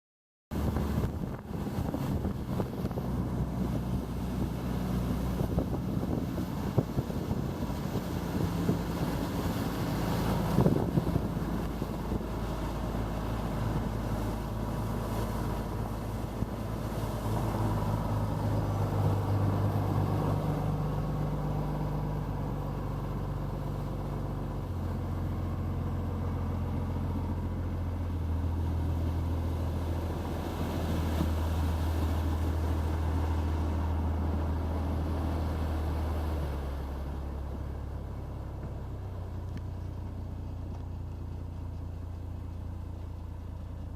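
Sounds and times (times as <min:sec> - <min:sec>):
boat engine droning: 0:00.5 - 0:43.9
wind and water hiss: 0:00.5 - 0:43.9.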